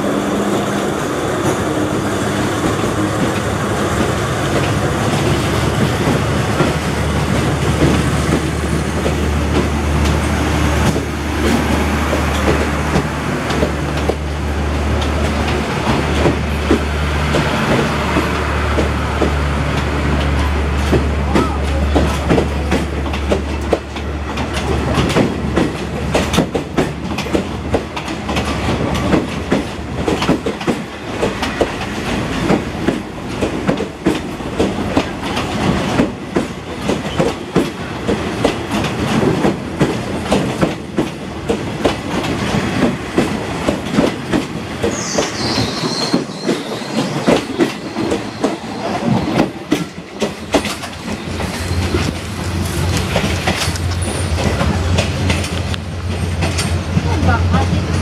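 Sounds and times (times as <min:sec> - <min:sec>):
train rumble: 0:00.0 - 0:58.0
wheels clacking over rail joints: 0:00.4 - 0:58.0
high wheel squeal: 0:44.8 - 0:49.6.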